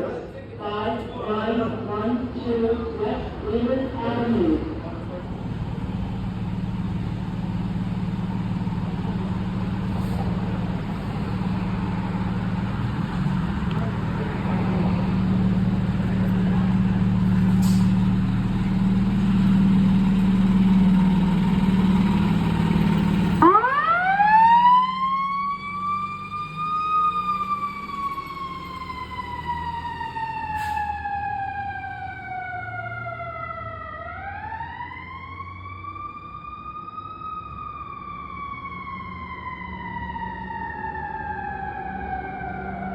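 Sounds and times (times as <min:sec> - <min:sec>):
diesel engine droning: 0:00.0 - 0:42.9
siren wailing: 0:23.1 - 0:42.9.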